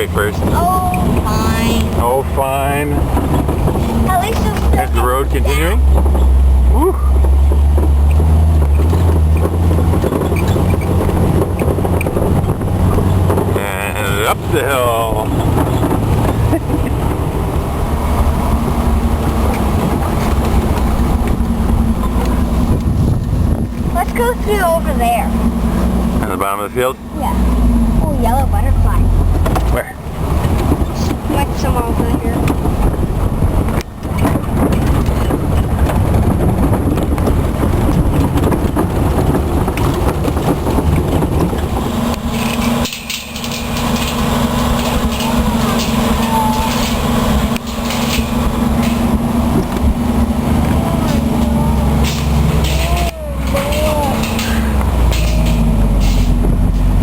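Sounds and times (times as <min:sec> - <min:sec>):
car engine hum: 0:00.0 - 0:57.0
ride rumble: 0:00.0 - 0:57.0
small rattles: 0:28.2 - 0:57.0.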